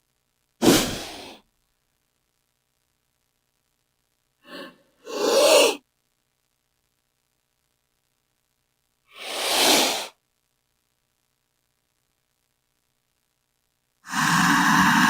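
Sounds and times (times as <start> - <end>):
snake hissing: 0.6 - 1.4, 4.5 - 5.8, 9.1 - 10.2, 14.0 - 15.0.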